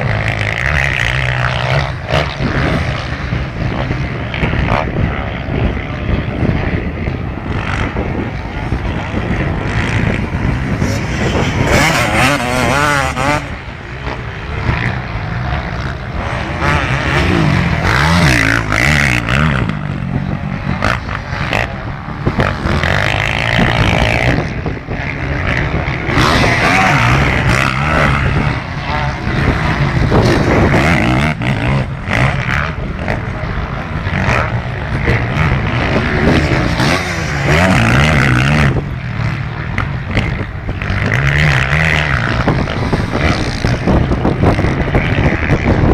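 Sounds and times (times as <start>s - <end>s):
motocross bike engines revving: 0.0s - 45.9s.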